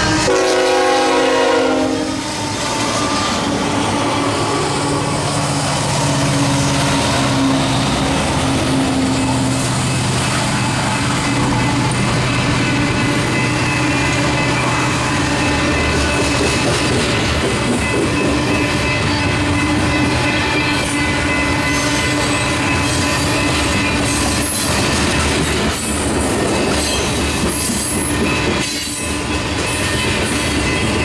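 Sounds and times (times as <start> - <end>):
train air horn: 0.0 - 5.2
diesel locomotive engines: 0.0 - 31.0
freight cars rolling on rails: 1.2 - 31.0.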